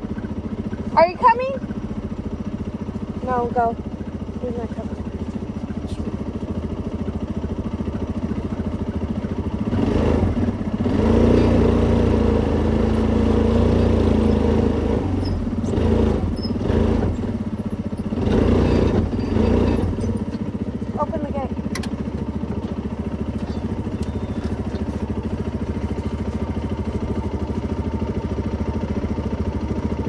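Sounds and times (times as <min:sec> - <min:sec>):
vehicle engine idling and revving: 0:00.0 - 0:30.0.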